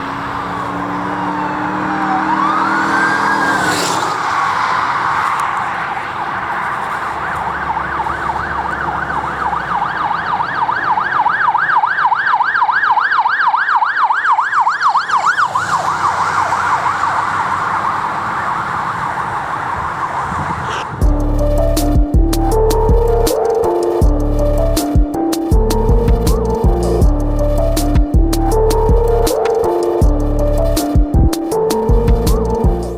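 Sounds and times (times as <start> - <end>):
police siren wailing and yelping: 0.0 - 21.1.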